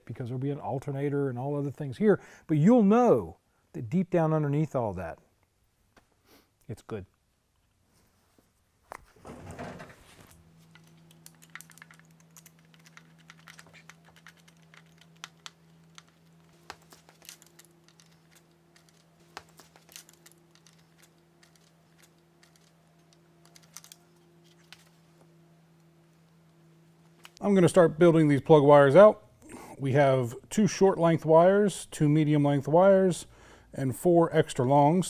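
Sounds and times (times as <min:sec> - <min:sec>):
steady low hum: 0:07.1 - 0:35.0
small parts clicking and tapping: 0:10.6 - 0:24.9.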